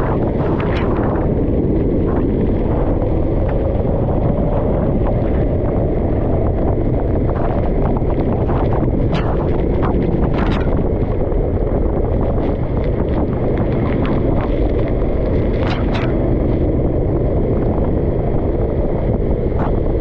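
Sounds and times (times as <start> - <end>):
wind noise on microphone: 0.0 - 20.0.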